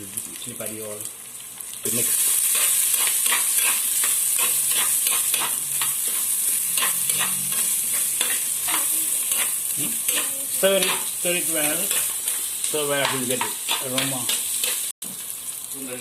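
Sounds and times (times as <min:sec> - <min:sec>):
food sizzling in hot oil: 0:00.0 - 0:16.0
spoon scraping: 0:02.4 - 0:14.9.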